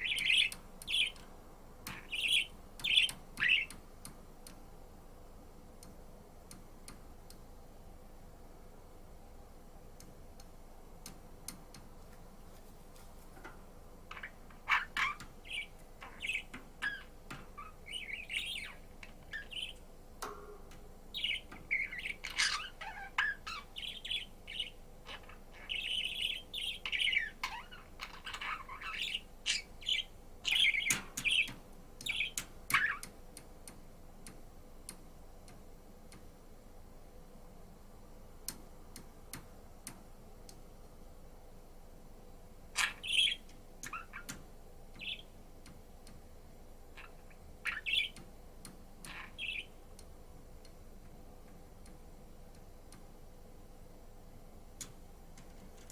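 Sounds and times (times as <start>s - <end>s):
budgerigar chirping and warbling: 0.0s - 1.2s, 1.9s - 3.7s, 14.1s - 19.8s, 21.2s - 33.1s, 42.8s - 44.3s, 47.0s - 48.2s, 49.1s - 49.7s.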